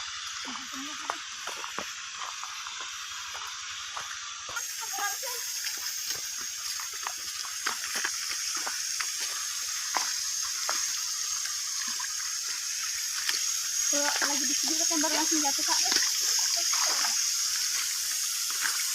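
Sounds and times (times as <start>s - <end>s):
hiss of spraying water: 0.0s - 18.9s
water drips and splashes: 0.0s - 18.9s.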